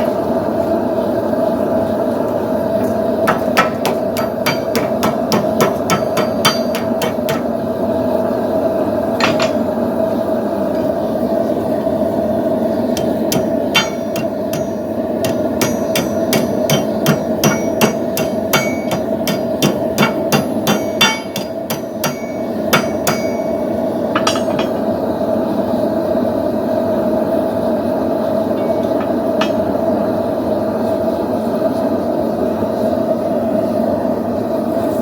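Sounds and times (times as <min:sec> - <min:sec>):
gas forge roaring: 0:00.0 - 0:35.0
hammer striking steel on anvil: 0:03.2 - 0:07.6, 0:09.2 - 0:09.7, 0:13.0 - 0:25.0, 0:28.4 - 0:29.9.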